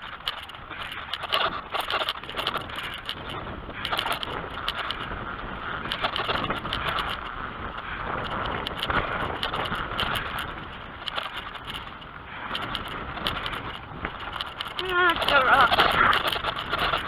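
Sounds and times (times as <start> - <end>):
bike clicks and rattles: 0.0 - 17.0
bike tyres on dirt: 0.0 - 17.0.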